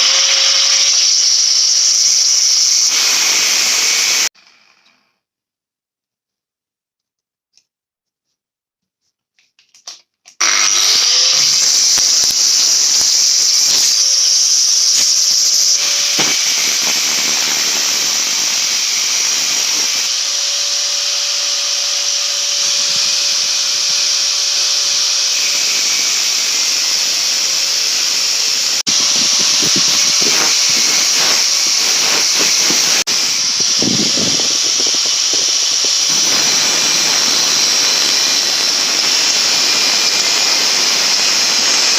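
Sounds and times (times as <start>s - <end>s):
metalworking power tool running: 0.0s - 5.0s, 10.4s - 41.9s
hiss and crackles from grinding: 10.3s - 41.9s.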